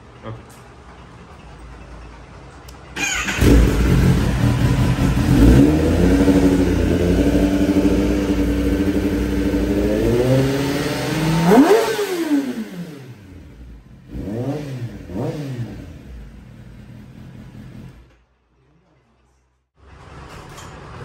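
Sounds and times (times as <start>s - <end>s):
motorcycle engine revving: 3.0s - 18.1s.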